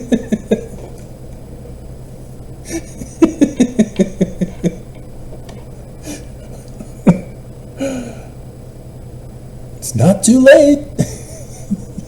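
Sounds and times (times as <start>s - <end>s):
man laughing: 0.0s - 1.0s, 2.6s - 5.0s, 6.0s - 8.2s, 10.9s - 12.0s.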